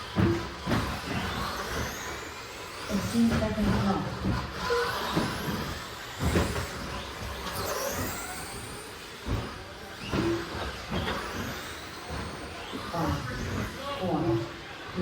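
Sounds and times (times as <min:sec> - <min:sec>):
toy truck motors whining: 0:00.0 - 0:15.0
tyre and track noise: 0:00.0 - 0:15.0.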